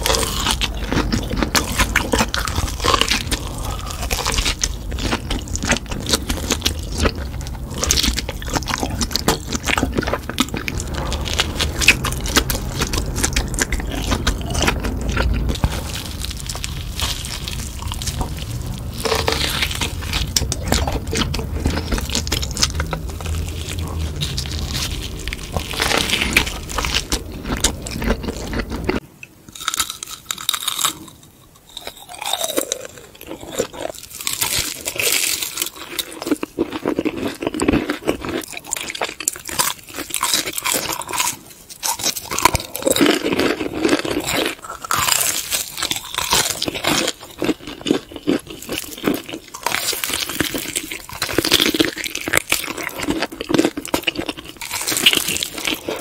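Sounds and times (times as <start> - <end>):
low hum: 0.0 - 29.2
crunching and chewing food: 0.0 - 56.0.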